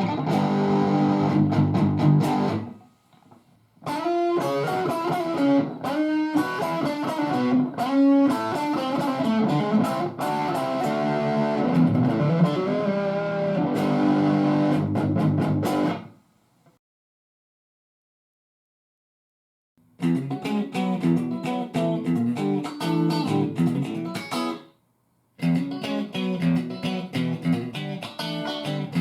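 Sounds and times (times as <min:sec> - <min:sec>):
distorted electric guitar riff: 0:00.0 - 0:02.8, 0:03.9 - 0:16.2, 0:20.0 - 0:24.6.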